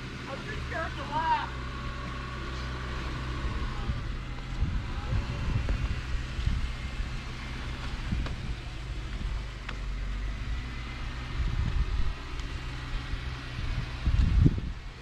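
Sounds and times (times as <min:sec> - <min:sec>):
off-road vehicle engine running low: 0:00.0 - 0:15.0
low thumps and knocks: 0:04.3 - 0:09.9.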